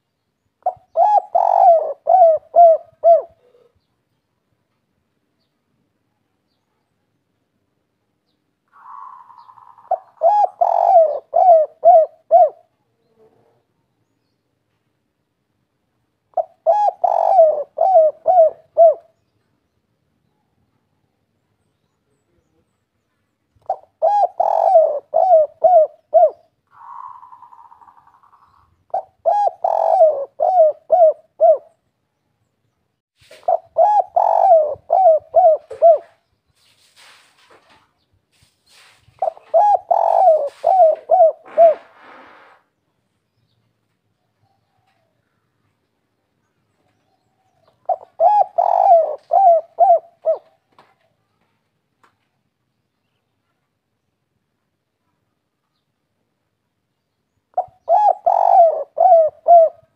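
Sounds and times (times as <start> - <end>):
dove cooing: 0.6 - 3.8, 8.7 - 13.6, 16.3 - 19.2, 23.6 - 31.8, 33.2 - 36.3, 39.2 - 42.5, 46.9 - 50.8, 57.5 - 59.9.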